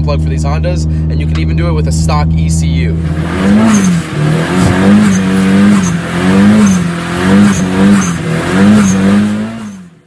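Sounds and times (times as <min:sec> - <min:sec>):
car engine revving: 0:00.8 - 0:10.0.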